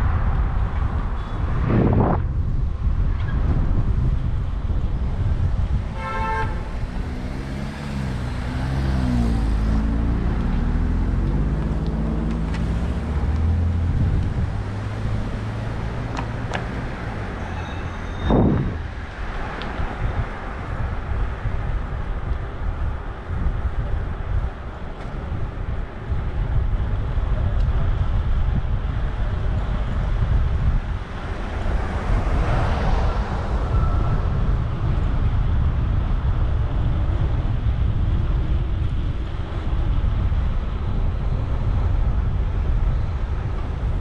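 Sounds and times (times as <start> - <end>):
loud rush of noise: 0.0 - 44.0
rumble of passing cars: 0.0 - 44.0
vehicle horn toot: 5.9 - 6.7, 17.4 - 18.6
vehicle engine passing: 6.5 - 17.5.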